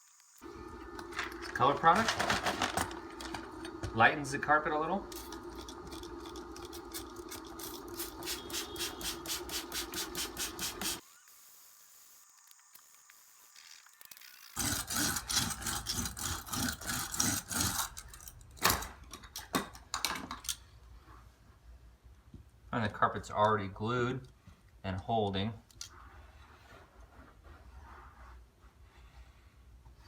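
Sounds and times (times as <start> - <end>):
steady hum: 0.4 - 11.0.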